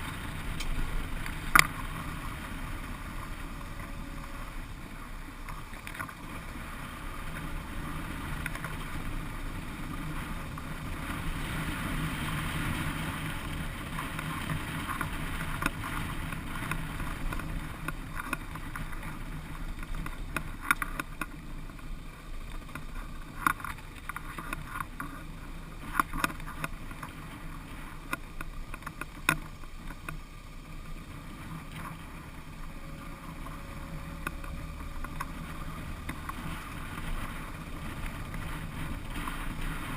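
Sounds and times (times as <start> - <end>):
motorcycle engine running: 0.0 - 39.9
sharp clicks and knocks: 0.5 - 1.8.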